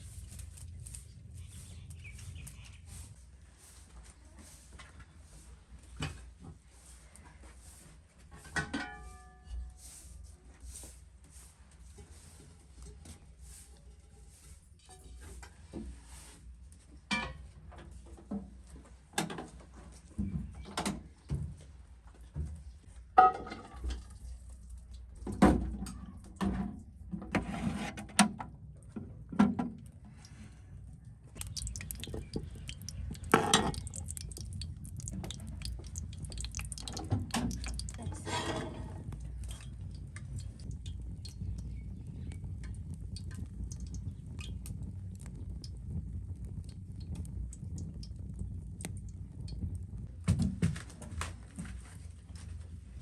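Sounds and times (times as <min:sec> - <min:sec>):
steady low rumble: 0:00.0 - 0:04.4, 0:28.6 - 0:53.0
knocks and clinks of objects: 0:31.4 - 0:39.9.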